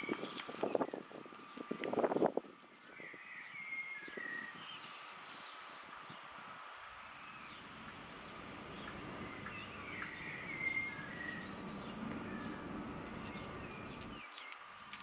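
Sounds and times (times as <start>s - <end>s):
low rumbling background noise: 4.6s - 15.0s
small bird chirping: 7.1s - 15.0s.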